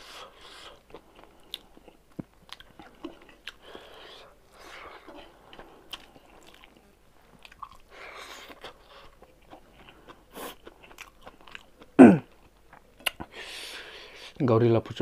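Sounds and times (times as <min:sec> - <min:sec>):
person chewing food: 0:00.0 - 0:14.2.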